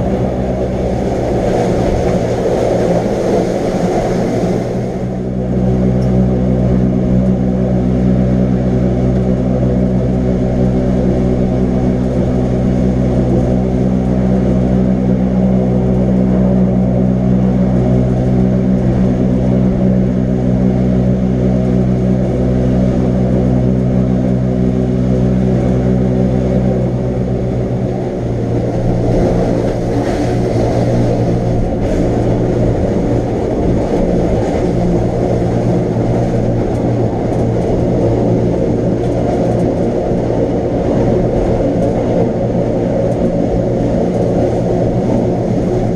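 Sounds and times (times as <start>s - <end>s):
electric train motors humming: 0.0s - 45.9s.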